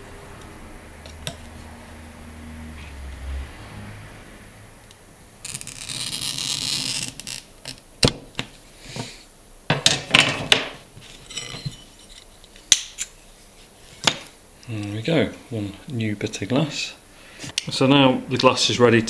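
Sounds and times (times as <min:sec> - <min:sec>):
glass cutter scoring glass: 0:05.4 - 0:07.8.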